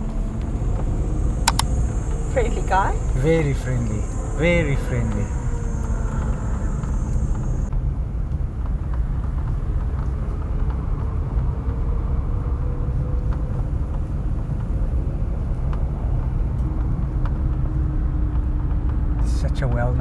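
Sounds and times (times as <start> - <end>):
car engine and road noise: 0.0 - 20.0
faint ticks: 1.5 - 2.5.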